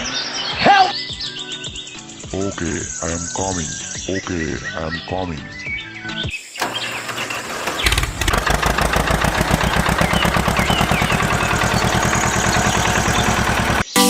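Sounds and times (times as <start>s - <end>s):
small engine chugging: 6.6s - 13.9s.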